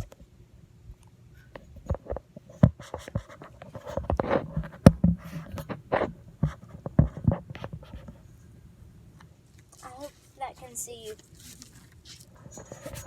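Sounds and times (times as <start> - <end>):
phone handling scraping and knocks: 1.8 - 8.2.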